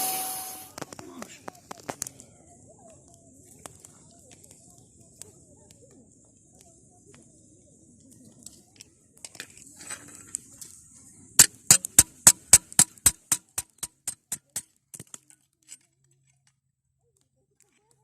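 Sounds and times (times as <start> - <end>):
sharp taps: 11.4 - 14.6.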